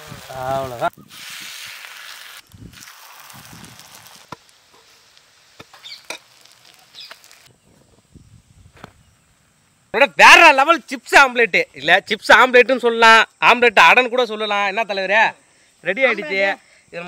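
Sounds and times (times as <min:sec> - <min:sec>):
food sizzling on a griddle: 0:00.0 - 0:07.5.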